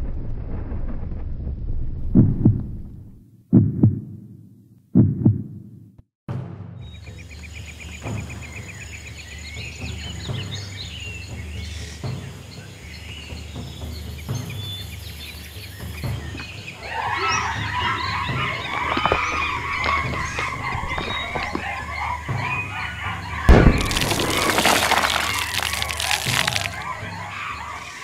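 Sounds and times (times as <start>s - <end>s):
chorus of bird calls: 7.0s - 28.0s
bird chirps: 12.6s - 28.0s.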